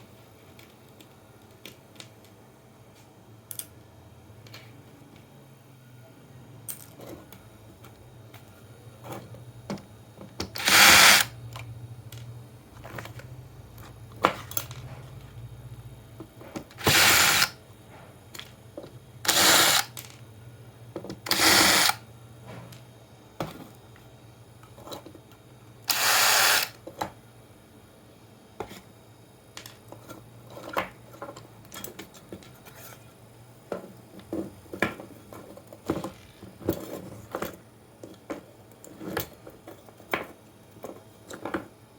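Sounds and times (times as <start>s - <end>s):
small power tool running: 10.6s - 11.4s, 16.8s - 17.6s, 19.3s - 20.0s, 21.3s - 22.0s, 25.9s - 26.7s.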